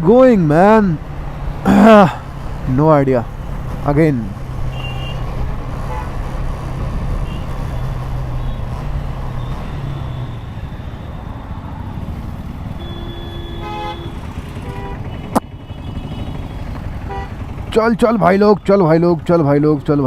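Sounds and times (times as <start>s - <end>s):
road and wind noise: 0.0s - 20.0s
vehicle horn honking: 4.7s - 5.3s, 5.9s - 6.1s, 7.2s - 7.5s, 12.8s - 17.4s
motorcycle engine running: 11.9s - 18.1s.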